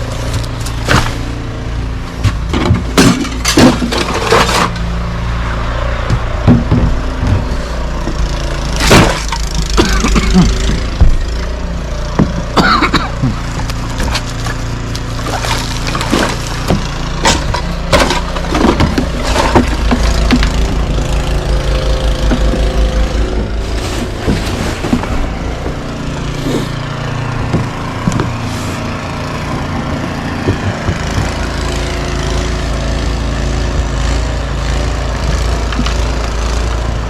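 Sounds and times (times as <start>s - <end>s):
engine running: 19.8s - 26.8s.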